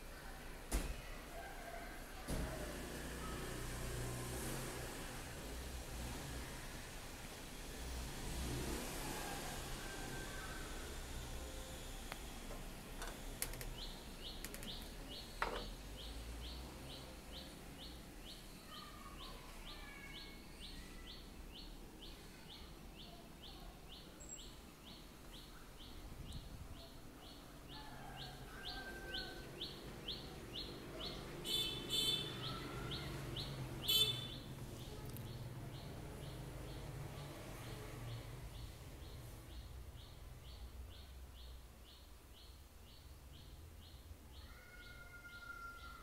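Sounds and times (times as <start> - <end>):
scattered bird calls: 13.1 - 23.6.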